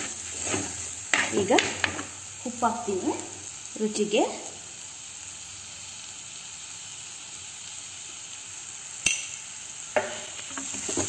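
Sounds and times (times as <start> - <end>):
chicken frying in oil: 0.0 - 11.0.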